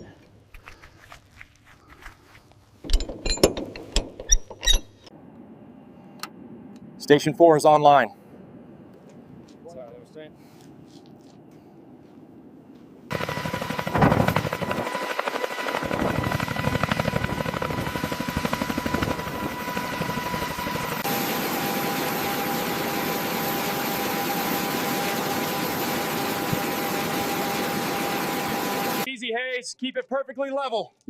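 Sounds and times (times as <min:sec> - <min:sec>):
helicopter engine and rotor running: 0:13.1 - 0:29.1.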